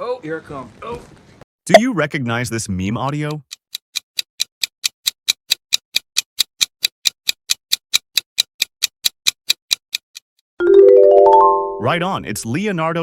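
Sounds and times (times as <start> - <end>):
clock ticking fast: 2.8 - 10.3.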